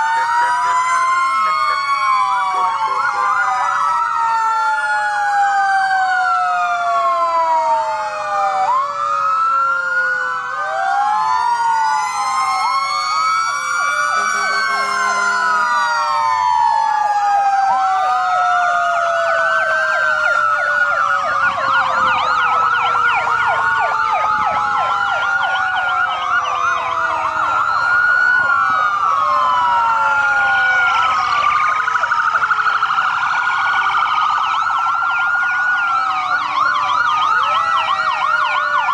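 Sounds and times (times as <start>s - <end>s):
fast yelping sirens: 0.0s - 38.9s
long falling siren tone: 0.0s - 38.9s
wailing sirens: 0.0s - 38.9s.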